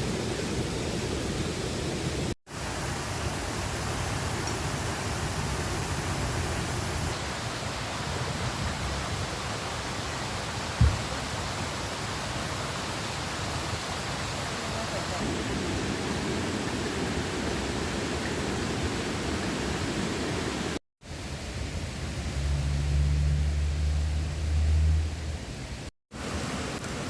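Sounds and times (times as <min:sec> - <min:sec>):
river water rushing: 0:02.5 - 0:20.8, 0:26.1 - 0:27.0
low thump: 0:10.8 - 0:11.2.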